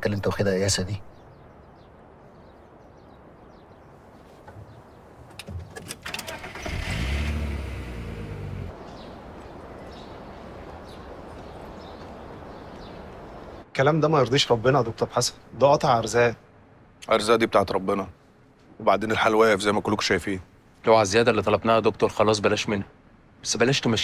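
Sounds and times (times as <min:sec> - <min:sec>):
car engine starting and idling: 0:05.7 - 0:08.8.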